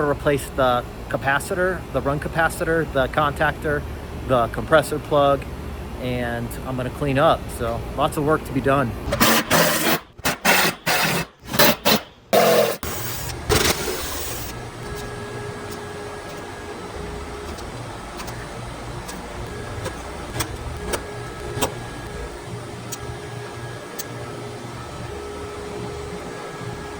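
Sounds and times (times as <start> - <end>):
vacuum pump droning: 0.0 - 26.9
rough noise bursts: 9.1 - 15.1.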